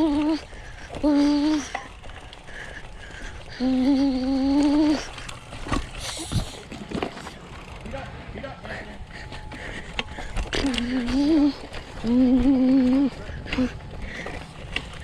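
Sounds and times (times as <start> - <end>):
person humming: 0.0 - 0.4, 1.0 - 1.8, 3.6 - 5.0, 10.6 - 13.8.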